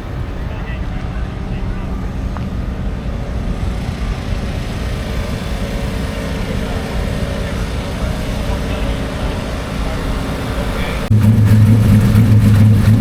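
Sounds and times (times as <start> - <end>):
race car engines rumbling: 0.0 - 13.0.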